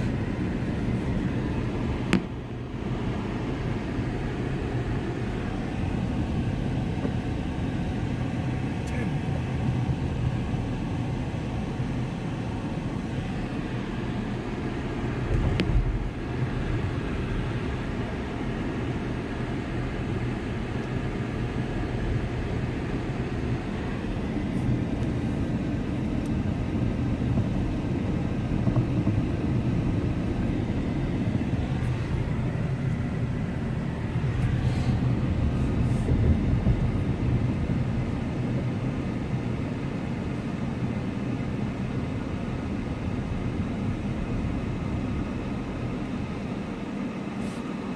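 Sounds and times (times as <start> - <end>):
car engine and road noise: 0.0 - 47.9
car bump: 2.0 - 2.4.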